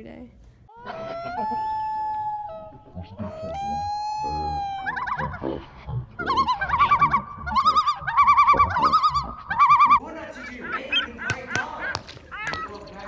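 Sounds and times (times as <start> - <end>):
person wailing high-pitched: 0.7 - 5.1.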